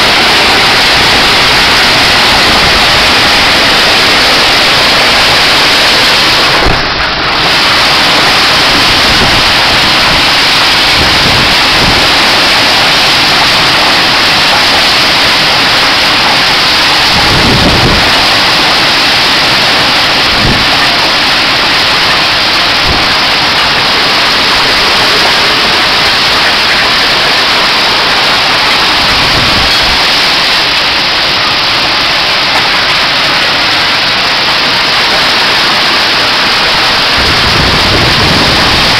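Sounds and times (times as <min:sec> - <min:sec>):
hail and rain pelting: 0:00.0 - 0:38.9
low thunder rumbles: 0:36.8 - 0:38.9.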